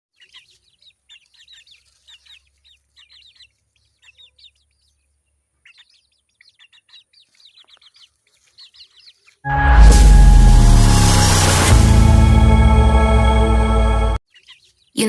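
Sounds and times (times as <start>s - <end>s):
chicks peeping: 0.1s - 9.4s, 14.3s - 15.0s.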